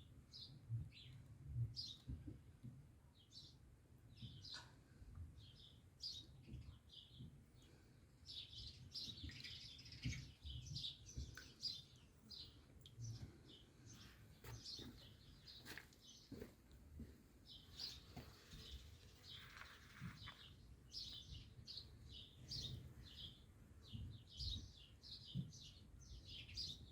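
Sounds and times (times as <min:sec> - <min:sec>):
sparrow chirping: 0:17.5 - 0:26.9.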